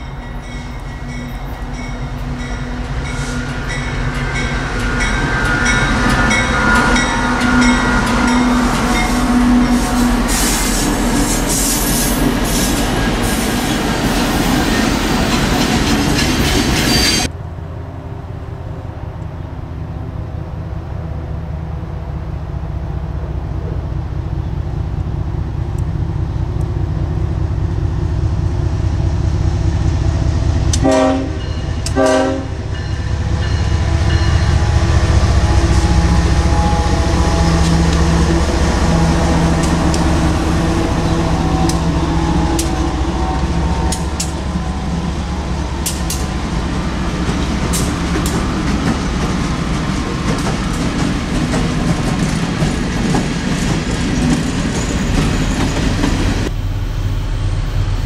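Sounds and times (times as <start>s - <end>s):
steady tones: 0.0s - 17.4s
approaching train deep rumble: 0.0s - 58.0s
train rumble and hiss: 0.0s - 58.0s.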